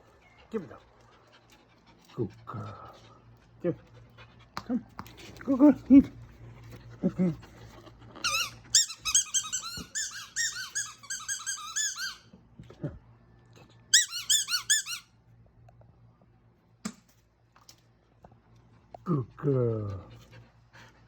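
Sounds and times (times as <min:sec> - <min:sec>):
squeaky ball squeaking: 0:08.2 - 0:12.3, 0:13.9 - 0:15.0.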